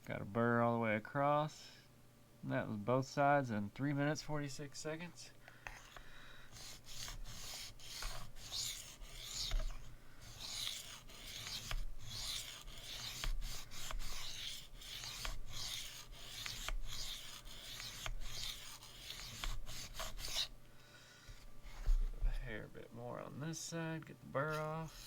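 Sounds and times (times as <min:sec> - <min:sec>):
knife scraping on sharpening plate: 0:06.6 - 0:20.5.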